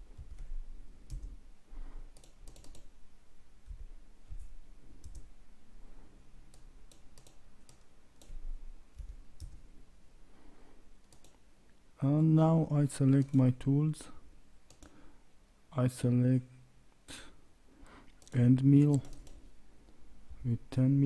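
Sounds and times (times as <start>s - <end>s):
computer mouse clicks: 2.1s - 2.9s, 3.6s - 5.3s, 6.5s - 9.6s, 11.0s - 11.4s, 13.2s - 13.4s, 14.7s - 15.0s, 18.1s - 19.5s
keyboard keystrokes: 2.1s - 2.9s, 6.5s - 8.4s, 11.1s - 11.4s, 18.2s - 19.4s.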